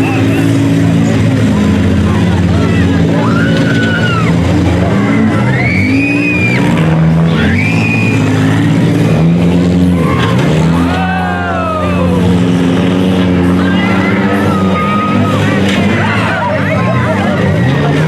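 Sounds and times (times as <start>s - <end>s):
car engines revving: 0.0s - 18.0s
high rising and falling whines: 2.1s - 17.7s.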